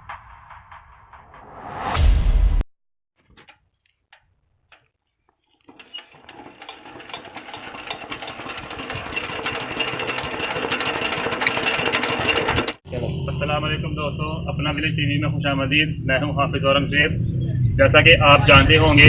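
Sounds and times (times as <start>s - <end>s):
diesel engine starting up: 5.7s - 19.0s.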